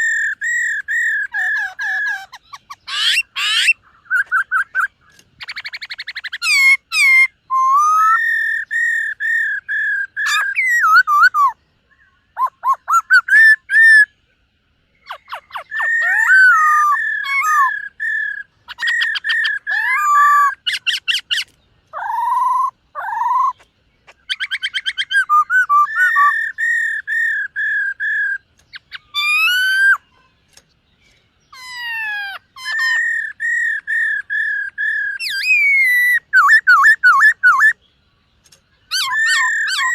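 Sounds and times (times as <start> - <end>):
bird singing whistled song: 0.0 - 14.2, 14.9 - 39.9.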